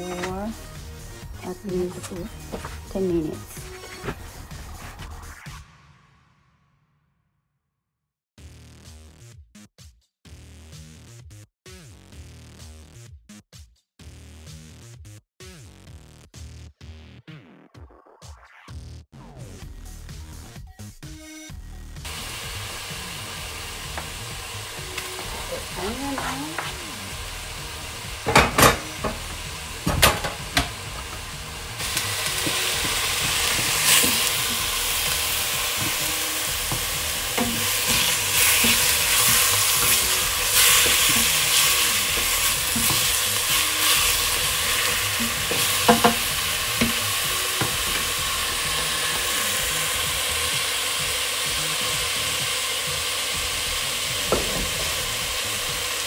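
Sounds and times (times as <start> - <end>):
wooden spoon scraping a pot: 1.9 - 4.2, 29.8 - 49.4
mince sizzling in a pot: 22.1 - 56.0.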